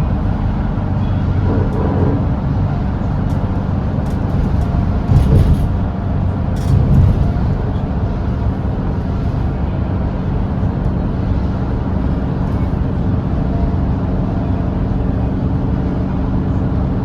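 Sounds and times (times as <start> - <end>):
bus diesel engine droning: 0.0 - 17.0
tyre and road noise: 0.0 - 17.0
rattles and bumps: 1.1 - 13.6.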